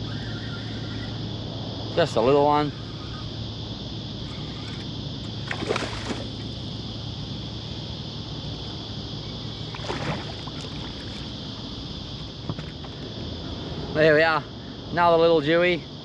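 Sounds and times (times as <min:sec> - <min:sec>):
low hum: 0:00.0 - 0:15.0
fish splashing at surface: 0:05.4 - 0:06.4.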